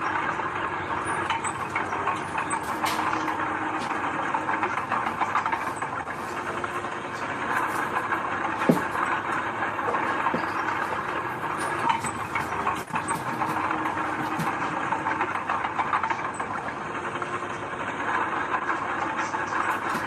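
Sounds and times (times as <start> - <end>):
heavy machinery diesel engine: 0.0 - 20.0
metallic clanks and rattles: 1.0 - 16.5.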